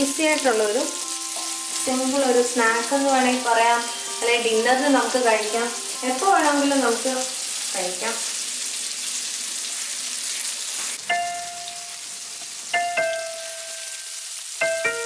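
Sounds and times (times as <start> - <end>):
slow piano notes: 0.0 - 7.3, 11.0 - 15.0
chicken sizzling in a pan: 0.0 - 15.0.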